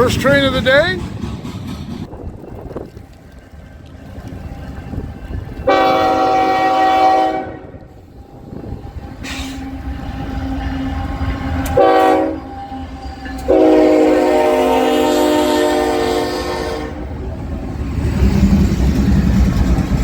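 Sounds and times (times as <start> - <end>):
diesel locomotives rumbling: 0.0 - 20.0
train horn blasts: 4.9 - 17.1.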